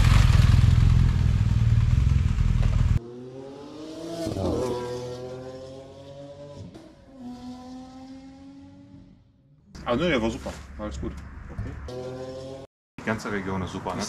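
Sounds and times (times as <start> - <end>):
motorcycle engine rumbling: 0.0 - 3.1.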